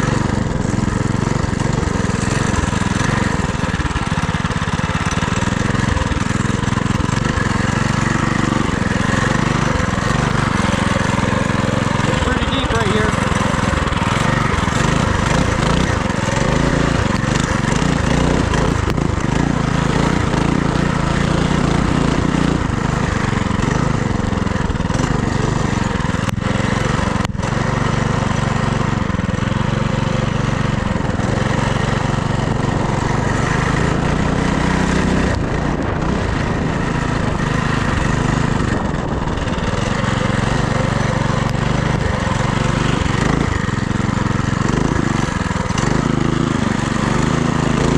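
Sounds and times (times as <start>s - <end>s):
small motorbike engine running: 0.0s - 47.9s
wind noise on microphone: 35.1s - 39.9s.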